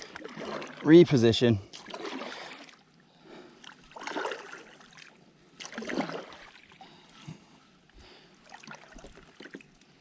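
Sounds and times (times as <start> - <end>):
kayak paddle splashing in water: 0.0 - 1.0, 1.7 - 2.9, 3.6 - 6.8, 8.4 - 9.8.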